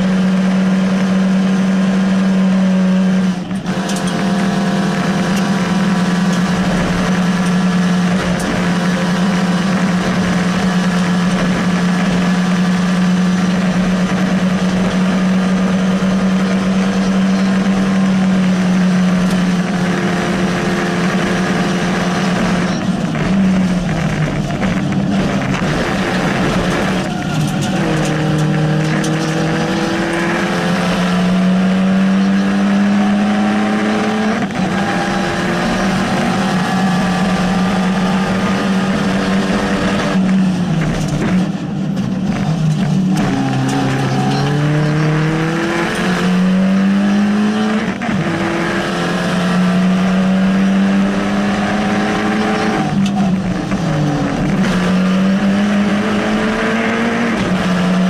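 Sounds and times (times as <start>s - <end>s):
gear change: 0.0s - 58.0s
rally car engine revving: 0.0s - 58.0s.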